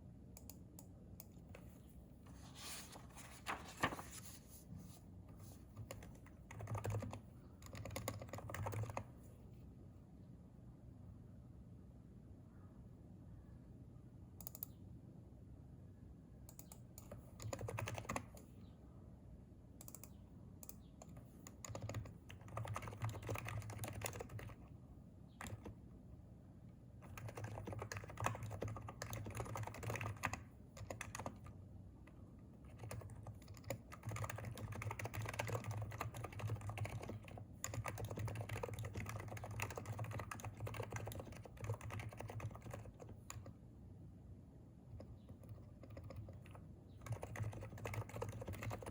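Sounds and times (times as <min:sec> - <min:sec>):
keyboard typing: 0:05.6 - 0:09.1, 0:16.5 - 0:18.5, 0:19.8 - 0:24.7, 0:25.3 - 0:25.8, 0:27.0 - 0:43.6, 0:44.9 - 0:48.9.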